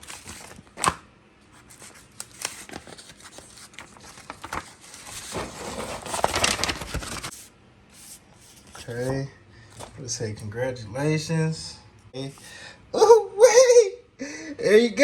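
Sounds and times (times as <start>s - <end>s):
paper tearing and crinkling: 0.0s - 1.0s, 1.6s - 7.5s.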